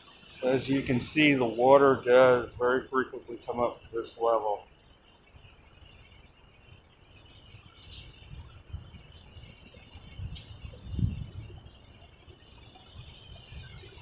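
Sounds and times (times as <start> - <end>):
high bird chirps: 3.5 - 14.0
wind gusts rumbling: 7.5 - 14.0.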